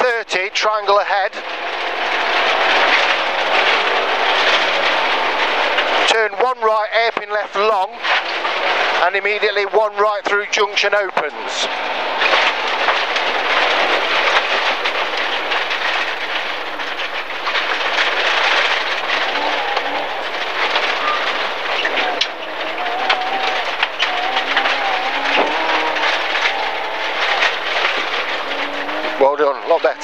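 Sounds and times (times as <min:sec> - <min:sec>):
car engine under load: 0:00.0 - 0:30.0
tyres roaring on gravel: 0:00.0 - 0:30.0
stones rattling against underbody: 0:01.0 - 0:06.0, 0:07.0 - 0:30.0
faint wavering engine tone: 0:11.3 - 0:30.0.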